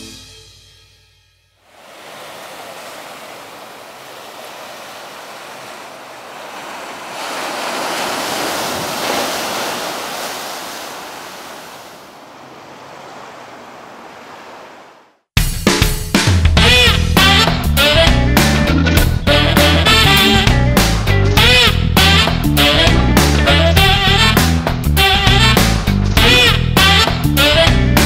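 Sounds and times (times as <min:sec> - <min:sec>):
ocean surf breaking: 0:01.6 - 0:15.3.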